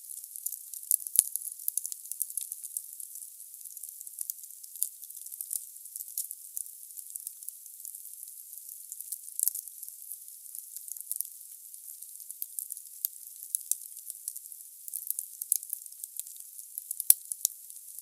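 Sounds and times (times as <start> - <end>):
firewood crackling and popping: 9.4 - 9.6.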